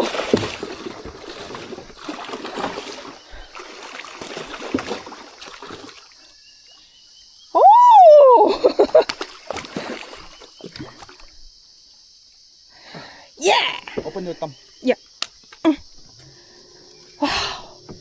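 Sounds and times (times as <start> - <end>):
water splashing and trickling: 0.0 - 6.9, 8.5 - 11.5.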